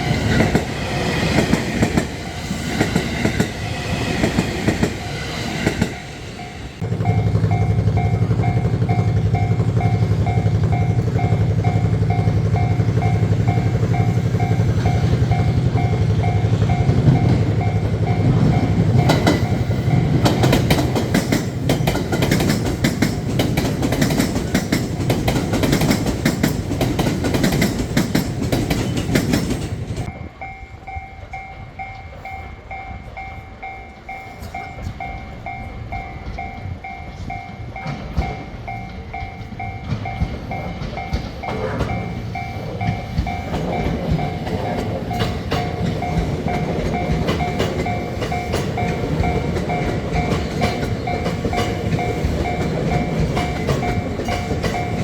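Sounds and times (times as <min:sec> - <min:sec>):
level-crossing alarm ringing: 0:00.0 - 0:55.0
train wheels clattering on rails: 0:00.0 - 0:55.0.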